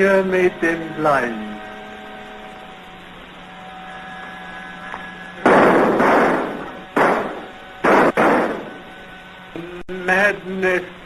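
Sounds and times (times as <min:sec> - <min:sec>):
faint film track hum and hiss: 0:00.0 - 0:11.0
loud gunshots with echo: 0:05.4 - 0:08.9.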